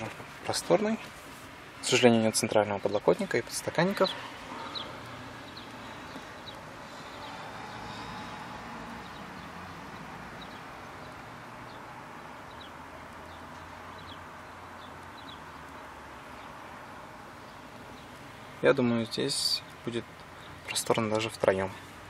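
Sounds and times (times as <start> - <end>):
faint bird chirps: 3.9 - 16.6.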